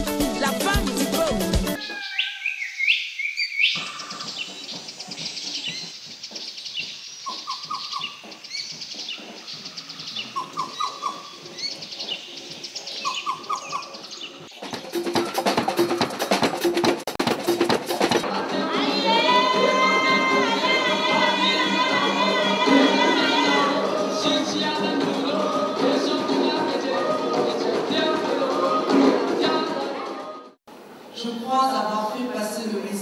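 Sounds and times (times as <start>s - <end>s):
rhythmic music: 0.0s - 1.8s, 14.5s - 30.6s
birds chirping: 1.8s - 16.3s.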